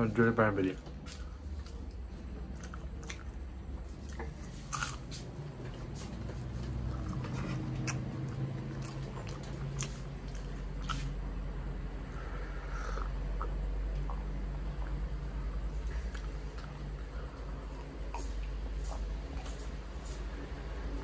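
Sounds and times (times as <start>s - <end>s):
person chewing food: 0.8s - 11.4s, 12.0s - 20.2s
person sipping tea: 12.1s - 20.2s.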